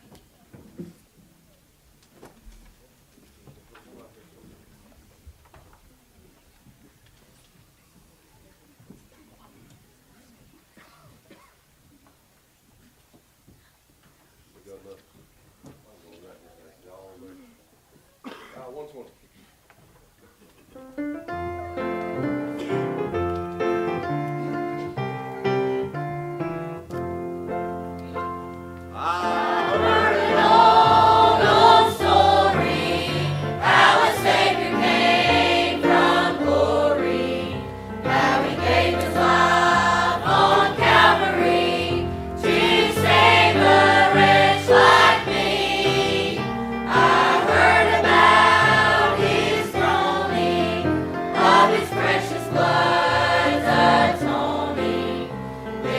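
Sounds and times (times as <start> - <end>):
instrumental accompaniment: 20.9 - 55.9
choir singing a hymn: 28.9 - 55.9.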